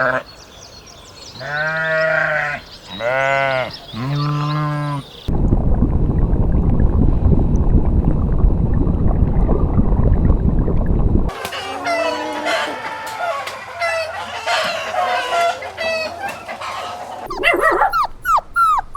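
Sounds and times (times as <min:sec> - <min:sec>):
farm animal bleating: 0:01.4 - 0:05.1
loud steady low rumbling: 0:05.3 - 0:11.3
faint bird chirping: 0:17.3 - 0:18.9.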